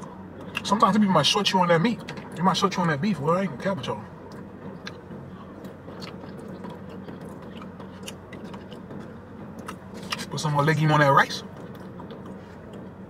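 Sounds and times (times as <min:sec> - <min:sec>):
low steady hum: 0:00.0 - 0:13.0
man chewing food: 0:04.2 - 0:10.3, 0:11.4 - 0:13.0.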